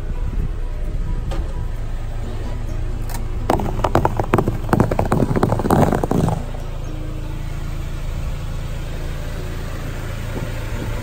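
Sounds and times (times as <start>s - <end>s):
car engine idling: 1.6s - 11.0s
tyre crushing foam balls: 3.5s - 6.6s.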